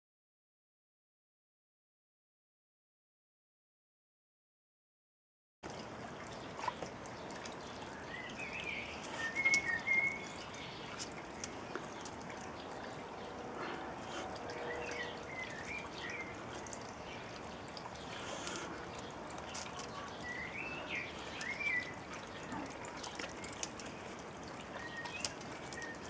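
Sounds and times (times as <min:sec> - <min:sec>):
steady outdoor hiss: 0:05.6 - 0:26.0.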